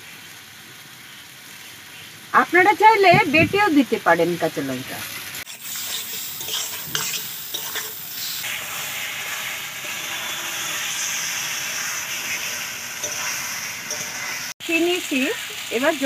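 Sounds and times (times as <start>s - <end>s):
vegetables sizzling in pan: 0.0s - 16.0s
spatula scraping and knocking pan: 5.5s - 8.0s, 8.8s - 14.5s.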